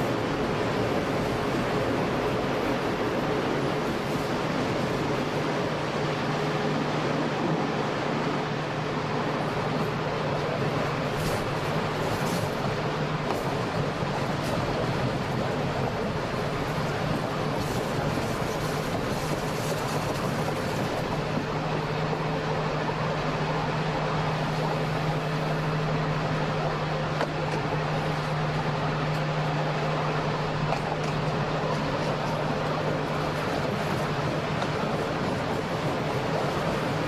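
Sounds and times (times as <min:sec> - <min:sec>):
train rolling on rails: 0:00.0 - 0:37.0.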